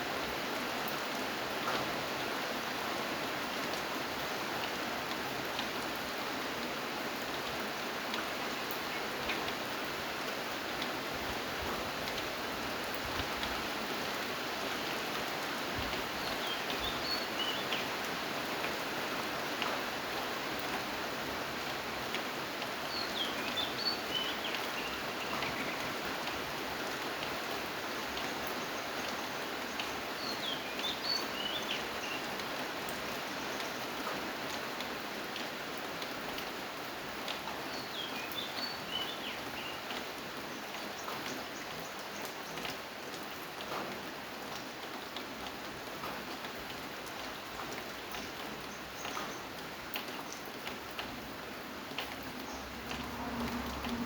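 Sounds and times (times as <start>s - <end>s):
rain falling: 0.0s - 54.0s
raindrops ticking: 42.0s - 54.0s.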